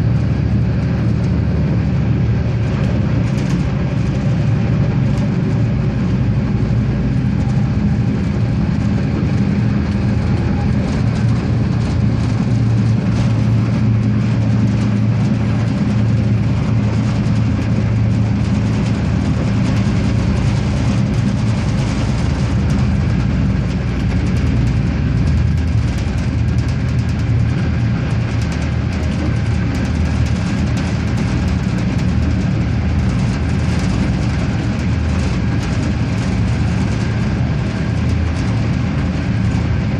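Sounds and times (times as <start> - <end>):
diesel engine drone: 0.0 - 39.9.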